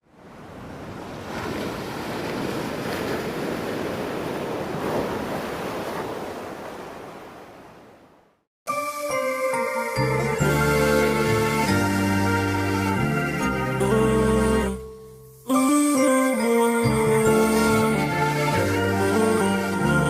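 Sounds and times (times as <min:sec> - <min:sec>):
music: 0:08.7 - 0:20.0.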